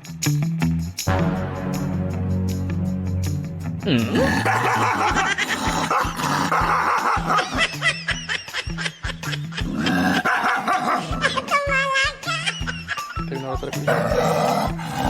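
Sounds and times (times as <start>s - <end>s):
background music with bass beat: 0.0s - 4.3s.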